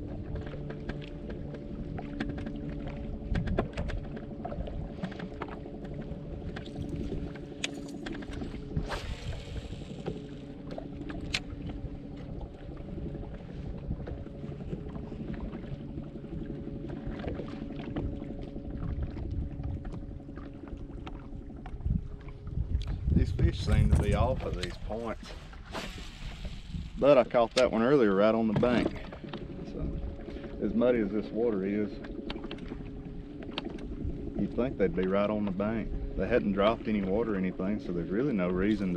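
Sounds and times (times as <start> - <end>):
wind rumble on microphone: 0.0 - 38.9
electric motor humming: 8.5 - 12.0.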